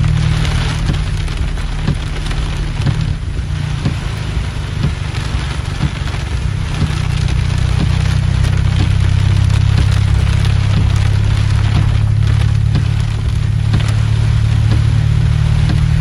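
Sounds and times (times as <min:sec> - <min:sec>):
heavy rain on car roof: 0:00.0 - 0:16.0
low rumble: 0:00.0 - 0:16.0.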